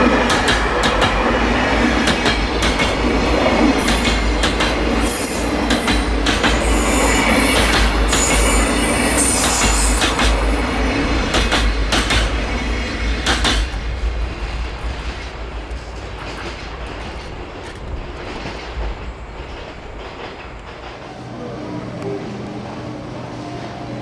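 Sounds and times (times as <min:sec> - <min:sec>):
wheels clacking over rail joints: 0:00.0 - 0:13.9
freight train passing: 0:00.0 - 0:24.0.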